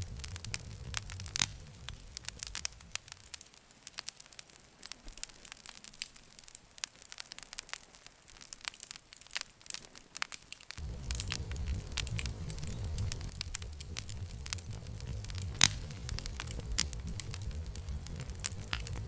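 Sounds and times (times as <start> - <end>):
low rumble: 0.0 - 3.2, 10.8 - 19.0
campfire crackling and popping: 0.0 - 19.0.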